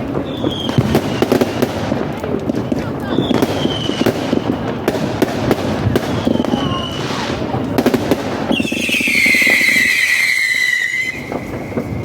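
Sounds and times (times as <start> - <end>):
firework crackling sputter: 0.0 - 12.0
firework whistle falling in pitch: 8.5 - 12.0.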